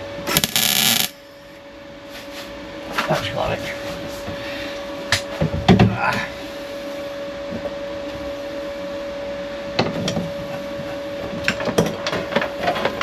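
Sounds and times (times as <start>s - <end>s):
steady hum: 0.0s - 2.1s.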